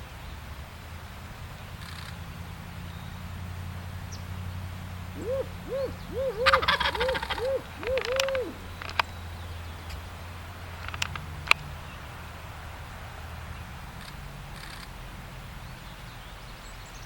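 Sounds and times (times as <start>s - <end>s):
man imitating owl hoots: 5.2s - 8.8s
turkey gobbling: 5.2s - 8.8s.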